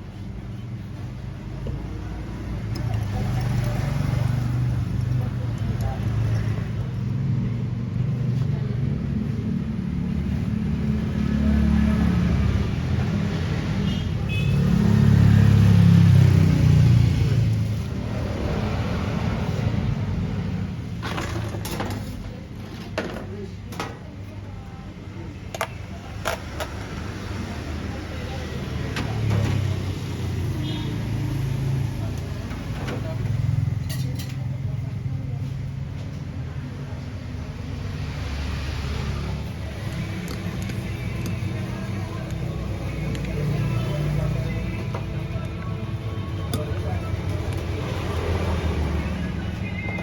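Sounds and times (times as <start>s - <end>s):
street traffic rumble: 0.0s - 50.0s
background voices: 37.4s - 50.0s.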